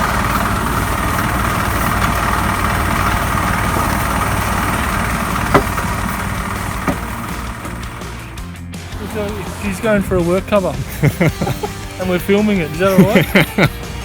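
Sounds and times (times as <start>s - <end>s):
vehicle engine idling: 0.0s - 14.0s
sharp knock: 5.5s - 5.8s.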